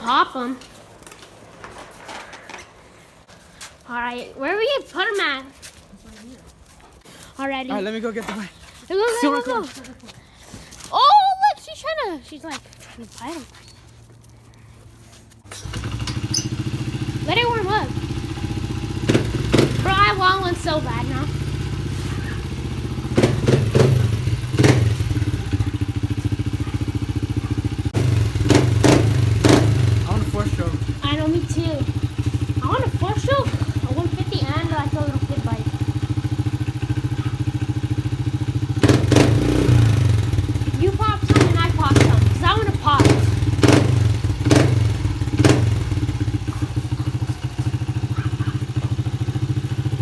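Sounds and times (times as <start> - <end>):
motorbike engine idling: 15.4 - 50.0.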